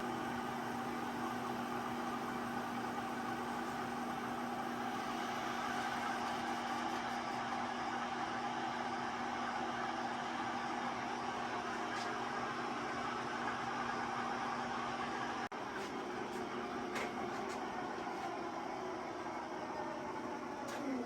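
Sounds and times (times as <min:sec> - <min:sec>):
metal lathe humming: 0:00.0 - 0:06.5.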